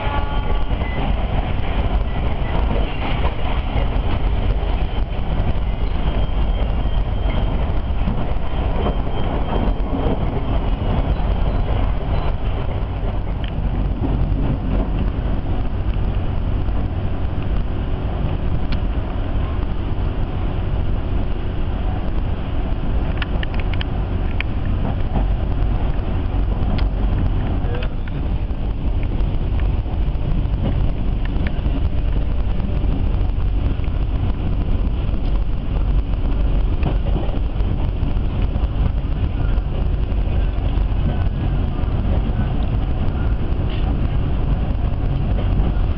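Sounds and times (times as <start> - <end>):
train rumble from inside coach: 0.0 - 45.9
faint clicks: 23.1 - 25.3.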